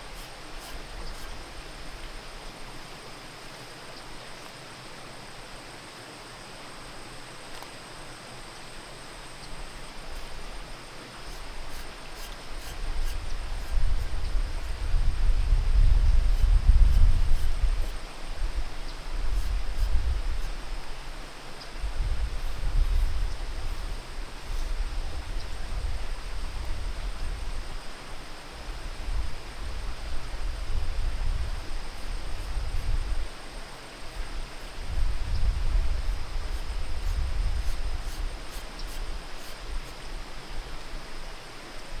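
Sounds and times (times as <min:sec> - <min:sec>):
steady outdoor hiss: 0:00.0 - 0:42.0
wind buffeting microphone: 0:12.7 - 0:20.8, 0:21.8 - 0:27.8, 0:28.7 - 0:33.4, 0:34.1 - 0:38.5.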